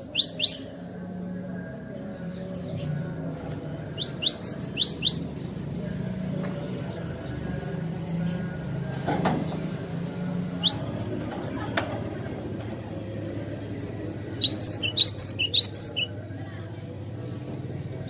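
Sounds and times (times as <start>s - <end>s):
bird calling sharp rising notes: 4.0s - 5.3s, 10.6s - 11.0s, 14.4s - 16.1s.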